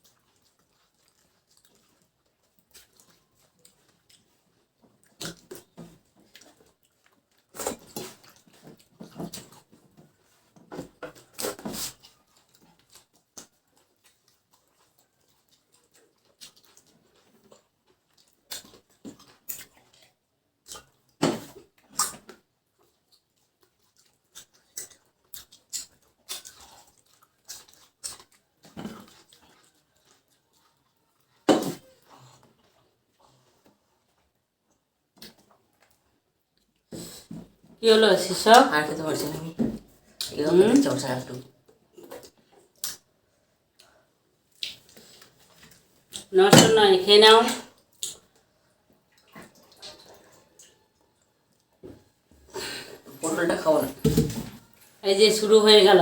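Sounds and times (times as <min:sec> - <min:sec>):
chewing and mouth sounds: 0:00.0 - 0:37.4, 0:41.6 - 0:43.1, 0:43.7 - 0:46.3, 0:47.7 - 0:53.3.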